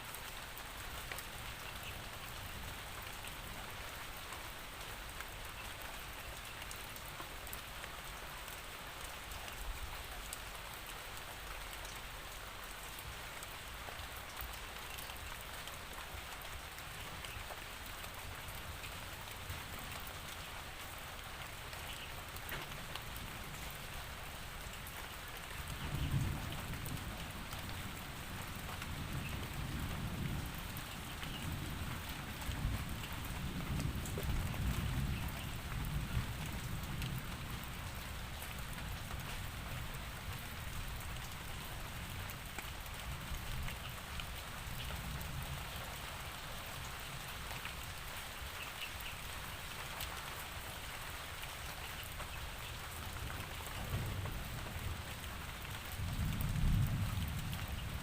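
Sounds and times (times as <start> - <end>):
steady rain falling: 0.0 - 58.0
distant thunder rumble: 53.8 - 58.0.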